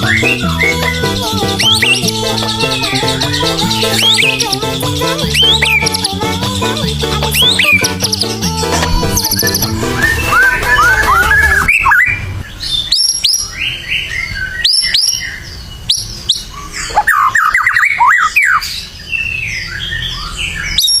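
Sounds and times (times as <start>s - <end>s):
bird singing whistles and trills: 0.0s - 6.2s, 7.3s - 8.4s, 9.2s - 21.0s.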